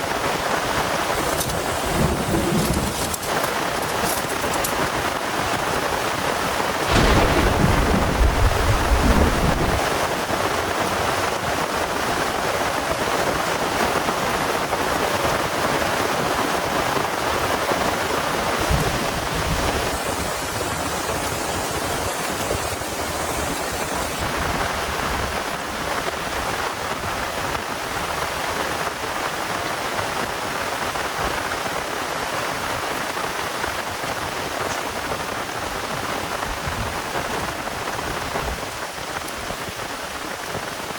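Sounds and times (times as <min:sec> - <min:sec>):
heavy rain falling: 0:00.0 - 0:40.9
thunder rumbling: 0:01.0 - 0:05.1, 0:06.8 - 0:11.7, 0:17.2 - 0:26.6
short low thud: 0:06.9 - 0:09.8.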